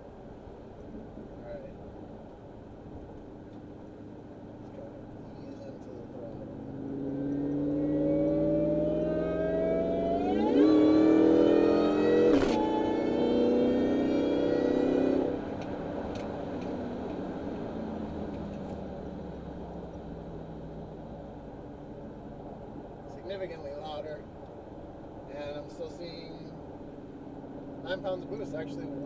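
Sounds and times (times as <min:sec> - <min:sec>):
supercharger whine: 0:00.0 - 0:29.0
truck engine accelerating: 0:05.4 - 0:23.2.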